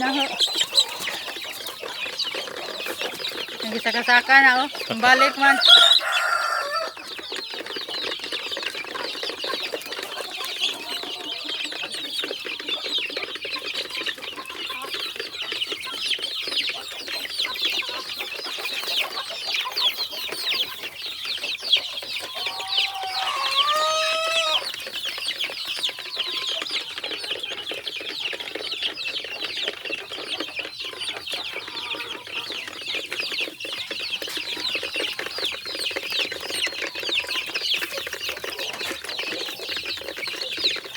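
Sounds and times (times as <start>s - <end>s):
chickens clucking and chirping: 0.0s - 40.9s
long loud chicken call: 4.9s - 7.0s, 22.3s - 24.8s.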